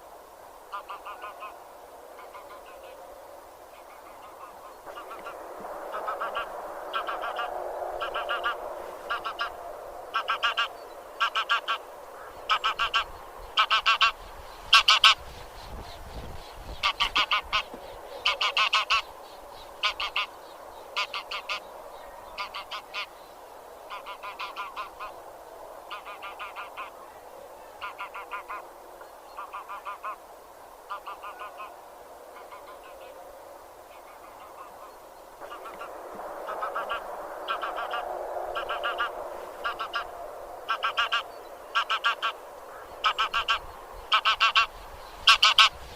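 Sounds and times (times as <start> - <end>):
background goose calls: 0.6 - 25.2, 25.8 - 33.2, 33.8 - 45.9
geese honking: 0.7 - 1.6, 3.8 - 15.2, 16.8 - 19.1, 19.8 - 20.3, 21.0 - 21.7, 22.4 - 23.1, 23.9 - 25.2, 25.9 - 27.0, 27.8 - 28.6, 29.4 - 30.2, 30.9 - 31.8, 33.9 - 45.8.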